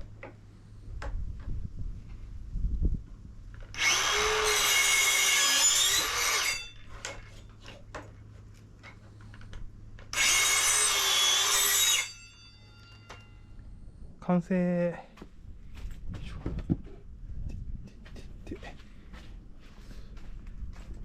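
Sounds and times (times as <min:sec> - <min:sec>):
electric drill drilling into wood: 0:03.7 - 0:06.4, 0:10.1 - 0:12.0.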